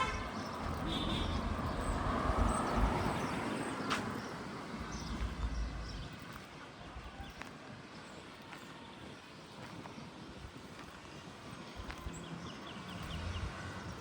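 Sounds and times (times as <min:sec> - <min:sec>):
car driving past: 0:00.5 - 0:06.0.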